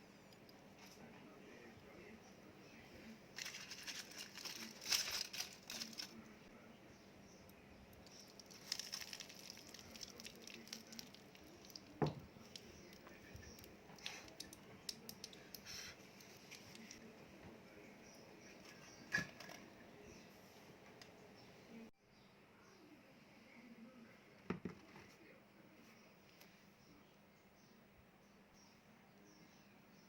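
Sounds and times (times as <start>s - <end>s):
crinkling and rustling: 3.3s - 6.4s, 8.0s - 17.1s.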